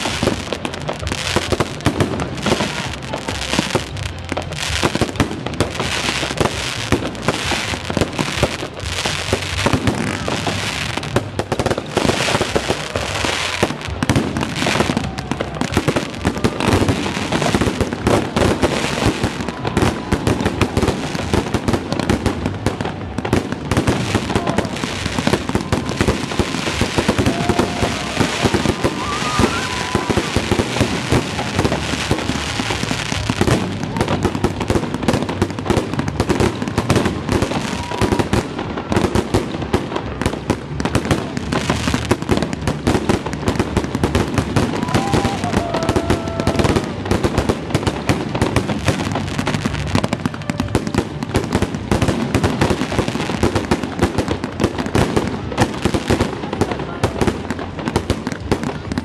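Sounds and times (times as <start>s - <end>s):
fireworks bursting and crackling: 0.0s - 59.0s.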